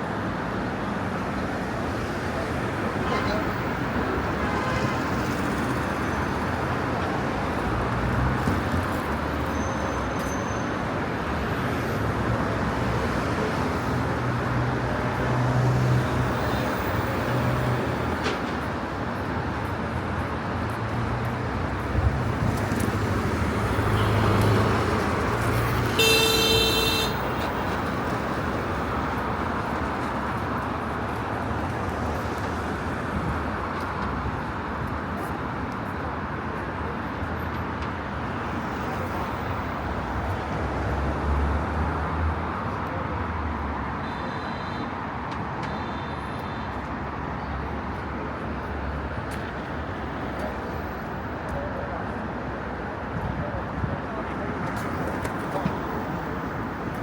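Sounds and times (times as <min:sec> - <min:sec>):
traffic road noise: 0:00.0 - 0:57.0
car horn beep: 0:26.0 - 0:27.3, 0:44.0 - 0:45.0.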